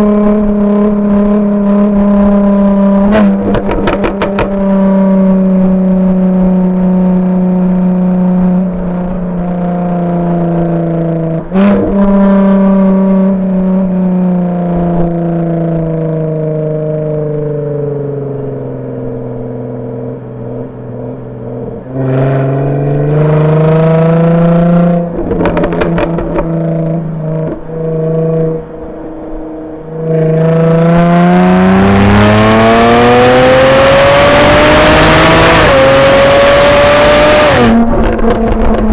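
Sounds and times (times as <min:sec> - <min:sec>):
sports car engine accelerating: 0:00.0 - 0:38.9
exhaust pops and cracks: 0:03.4 - 0:04.6, 0:25.2 - 0:26.6, 0:37.7 - 0:38.9.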